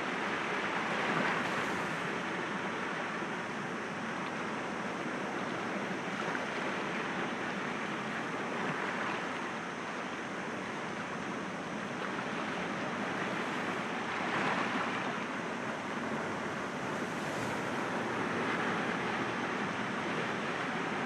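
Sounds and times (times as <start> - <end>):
sea waves breaking against rocks: 12.4 - 21.0.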